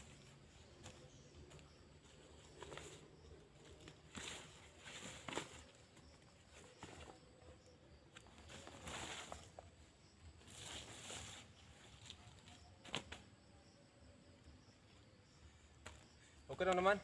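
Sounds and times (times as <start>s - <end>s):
dry leaves rustling: 8.4s - 9.7s.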